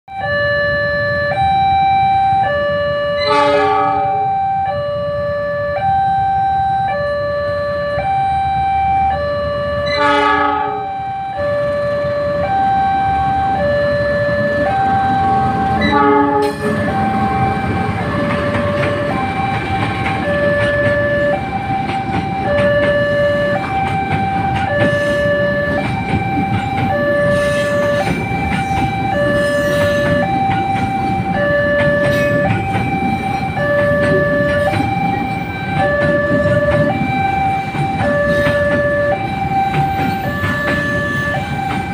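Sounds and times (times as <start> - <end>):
level crossing alarm: 0.1 - 41.9
train rumbling: 0.1 - 41.9
train horn blasts: 3.2 - 4.3, 9.8 - 11.2, 14.6 - 19.3, 22.6 - 26.0, 26.6 - 35.2, 35.8 - 39.4.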